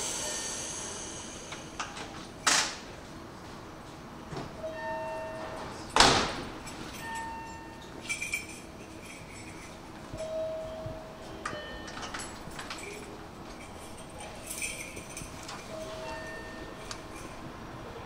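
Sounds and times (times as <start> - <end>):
train air hissing: 0.0 - 2.4.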